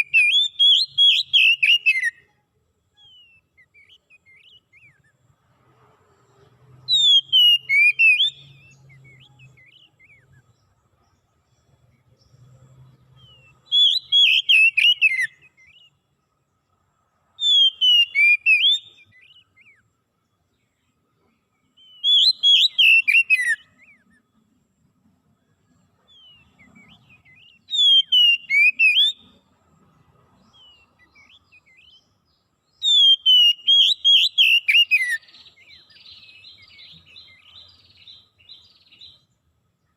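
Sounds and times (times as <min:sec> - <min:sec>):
songbird singing whistled phrases: 0:00.0 - 0:02.3, 0:02.9 - 0:05.3, 0:06.9 - 0:10.6, 0:13.1 - 0:16.0, 0:17.4 - 0:19.9, 0:21.6 - 0:24.4, 0:25.7 - 0:29.4, 0:30.4 - 0:39.3
faint bird chirps: 0:00.0 - 0:39.9.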